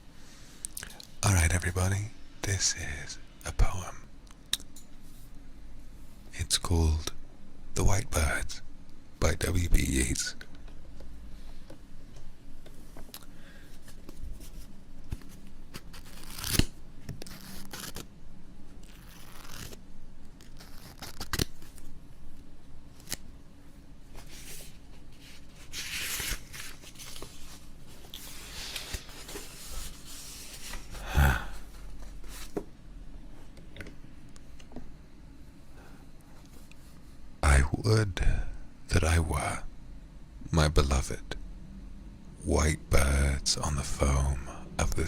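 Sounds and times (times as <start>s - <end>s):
rustling and handling noises: 10.9s - 18.1s, 18.7s - 35.0s.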